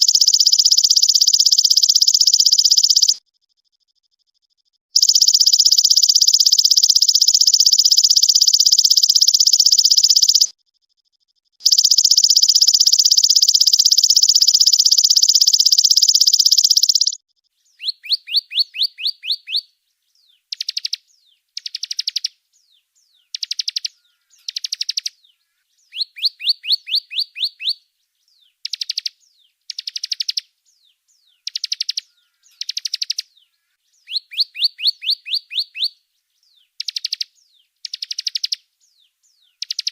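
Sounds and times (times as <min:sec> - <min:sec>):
high buzzing bird trills: 0:00.0 - 0:03.2, 0:05.0 - 0:10.5, 0:11.6 - 0:17.2, 0:23.2 - 0:27.8, 0:31.3 - 0:36.0
rapid high bird chirps: 0:00.0 - 0:03.2, 0:05.0 - 0:10.6, 0:11.6 - 0:39.9.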